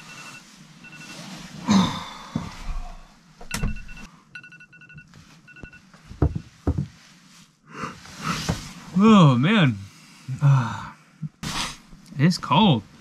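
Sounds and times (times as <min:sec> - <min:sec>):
short electronic beeps: 0:00.0 - 0:01.2.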